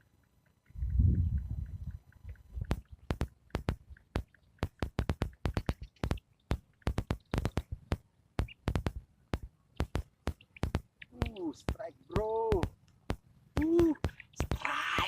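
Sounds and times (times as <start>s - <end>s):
electronic drum beat: 2.6s - 6.2s.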